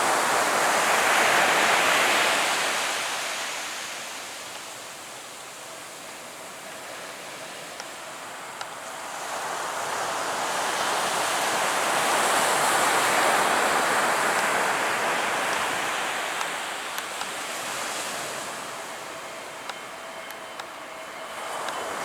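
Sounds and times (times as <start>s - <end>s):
surf washing onto beach: 7.0s - 19.4s.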